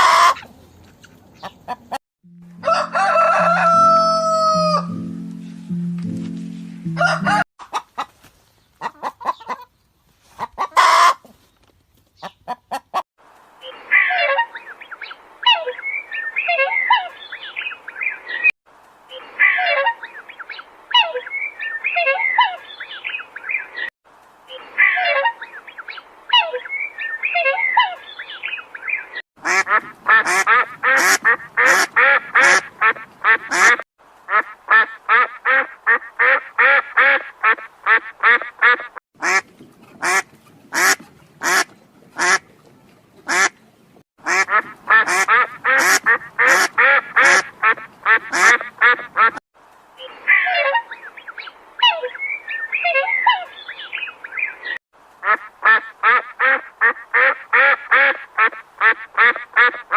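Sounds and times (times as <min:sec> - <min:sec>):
ducks quacking: 0:00.0 - 0:00.5, 0:10.4 - 0:11.2, 0:29.4 - 0:42.5, 0:43.2 - 0:43.6, 0:44.2 - 0:49.4, 0:54.6 - 0:59.9
chickens clucking and squawking: 0:00.0 - 0:05.0, 0:06.8 - 0:11.4, 0:12.2 - 0:13.0, 0:13.6 - 0:18.5, 0:19.1 - 0:23.9, 0:24.5 - 0:42.4, 0:44.3 - 0:49.4, 0:50.0 - 0:59.9.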